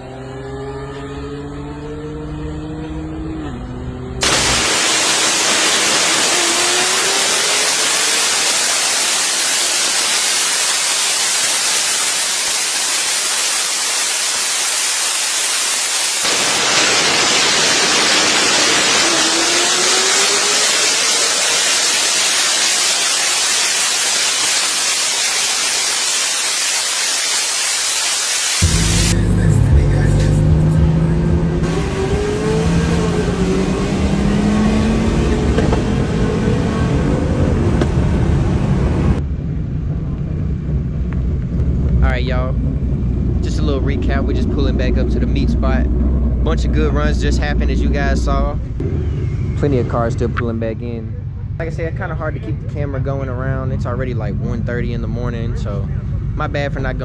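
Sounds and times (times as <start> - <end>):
distant engine accelerating: 0.0 - 12.4, 16.2 - 25.8, 28.6 - 39.2
car engine winding down: 0.0 - 27.9, 28.5 - 39.2
loud steady hiss: 4.2 - 34.7.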